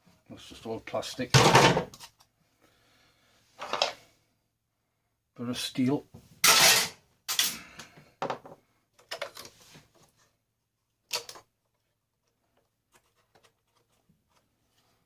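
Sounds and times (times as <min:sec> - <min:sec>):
plastic and metal parts clattering: 0:03.6 - 0:04.0, 0:08.2 - 0:10.2, 0:11.0 - 0:11.8.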